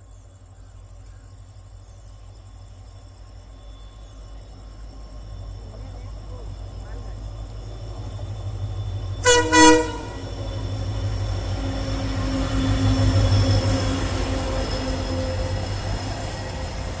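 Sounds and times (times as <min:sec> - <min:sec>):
train rumbling past: 0:00.0 - 0:17.0
train horn blasts: 0:09.2 - 0:10.7.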